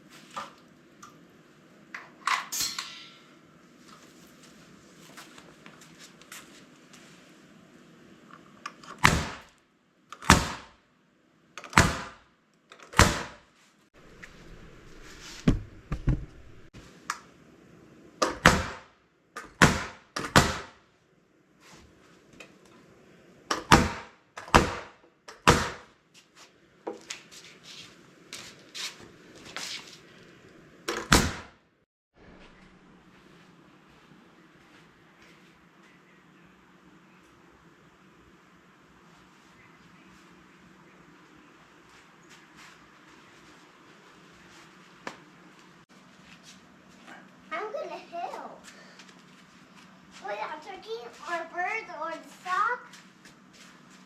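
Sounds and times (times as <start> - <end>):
faint steady background noise: 0.0 - 54.0
sharp knocks: 15.4 - 16.6.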